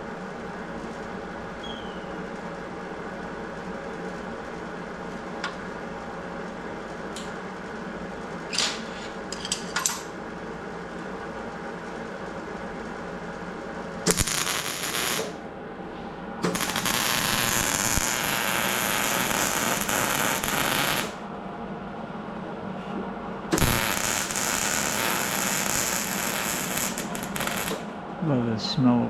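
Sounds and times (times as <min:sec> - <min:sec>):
steady hum: 0:00.0 - 0:29.0
welding arc crackling and hissing: 0:14.1 - 0:15.4, 0:16.4 - 0:21.2, 0:23.6 - 0:28.0.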